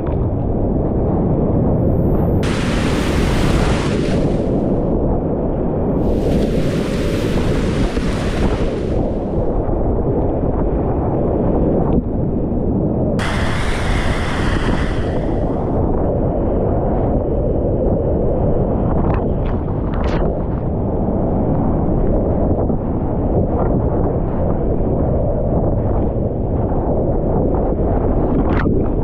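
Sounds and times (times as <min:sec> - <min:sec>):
wind buffeting microphone: 0:00.0 - 0:29.0
bright hiss: 0:02.4 - 0:04.7, 0:13.2 - 0:15.8
rushing whitewater: 0:02.4 - 0:04.8, 0:06.0 - 0:09.5, 0:13.2 - 0:15.8.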